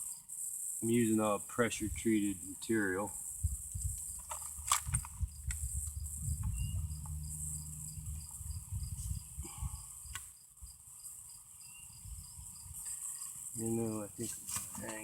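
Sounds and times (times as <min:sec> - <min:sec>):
crickets chirping: 0:00.0 - 0:15.0
high insect drone: 0:00.0 - 0:15.0
low rumble: 0:05.0 - 0:09.3.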